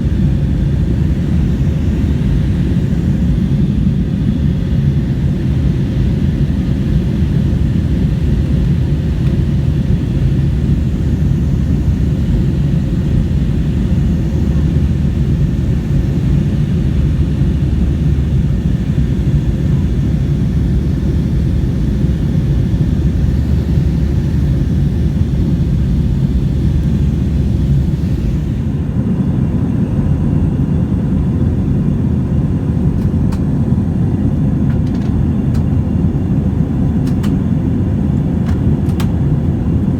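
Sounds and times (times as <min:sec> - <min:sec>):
jet engine rumble: 0:00.0 - 0:39.9.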